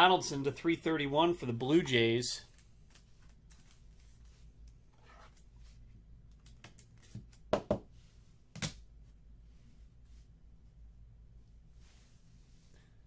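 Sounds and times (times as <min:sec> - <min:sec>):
cards rustling: 0:02.5 - 0:05.5.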